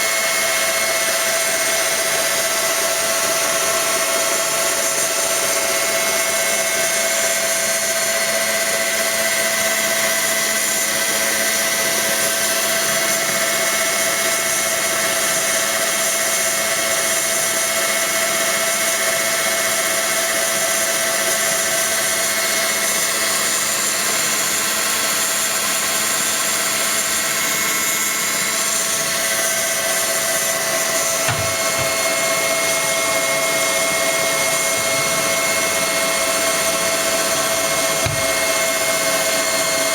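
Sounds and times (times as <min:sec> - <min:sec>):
stand mixer motor whining: 0:00.0 - 0:39.9
short knock: 0:31.3 - 0:32.1, 0:38.0 - 0:38.7.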